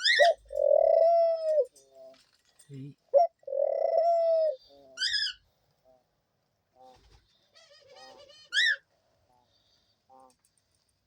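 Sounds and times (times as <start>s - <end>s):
higher-pitched dove call: 0.0s - 1.7s
dove cooing: 0.0s - 2.1s, 3.1s - 5.3s.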